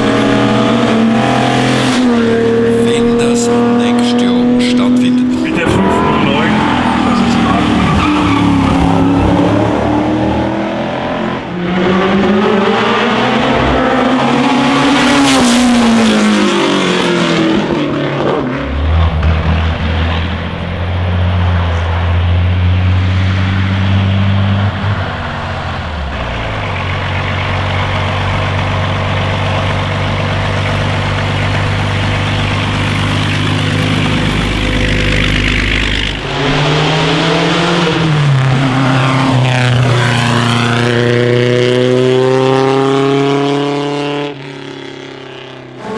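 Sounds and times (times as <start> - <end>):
racing car engines revving: 0.0 - 45.9.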